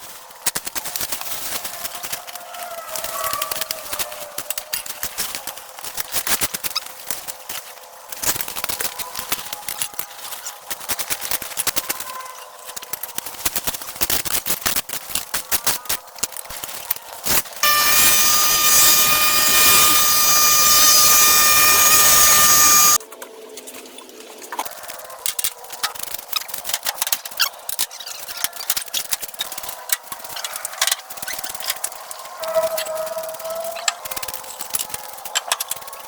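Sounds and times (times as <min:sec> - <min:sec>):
sharp clicks and cracks: 0:12.8 - 0:23.0
small motor whining: 0:17.6 - 0:23.0.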